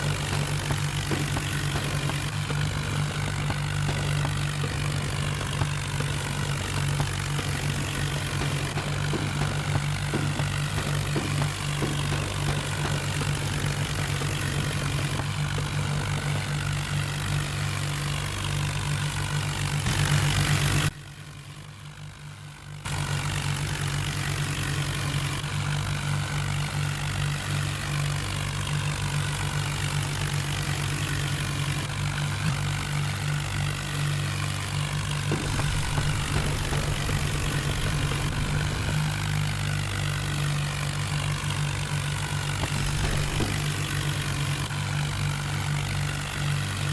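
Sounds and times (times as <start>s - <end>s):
tractor diesel engines droning: 0.0s - 46.9s.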